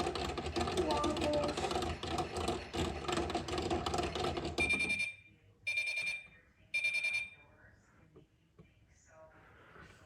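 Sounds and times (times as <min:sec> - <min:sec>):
washing machine beeps: 0:04.5 - 0:07.6.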